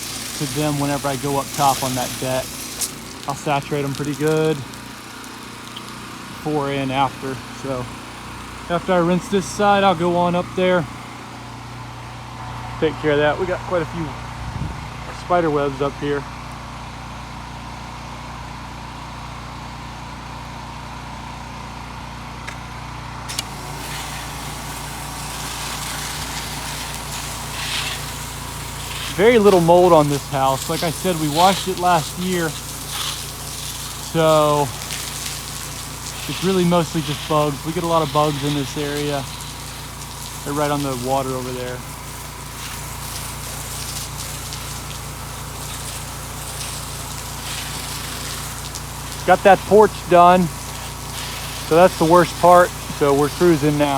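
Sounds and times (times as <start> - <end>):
water spray hissing: 0.0 - 11.1, 23.3 - 53.9
pressure washer engine running: 0.0 - 53.9.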